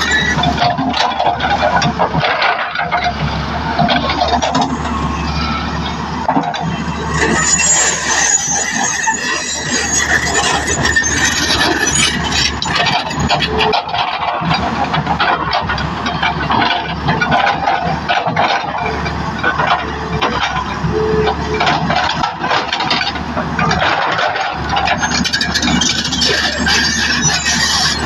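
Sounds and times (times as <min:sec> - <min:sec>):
diesel engine running: 0:00.0 - 0:28.0
metallic clanks and rattles: 0:09.7 - 0:28.0.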